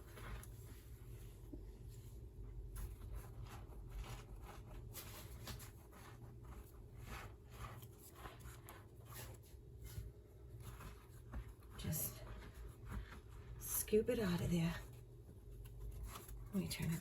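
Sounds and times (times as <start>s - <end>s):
bread crackling and tearing: 0.0s - 0.9s, 1.8s - 13.6s
low steady hum: 0.0s - 17.0s.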